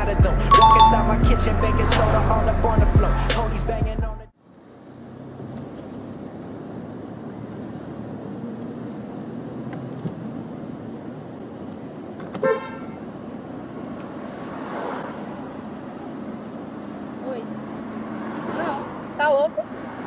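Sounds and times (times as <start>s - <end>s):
street traffic noise: 0.0s - 20.0s
short car horn toot: 12.4s - 13.0s.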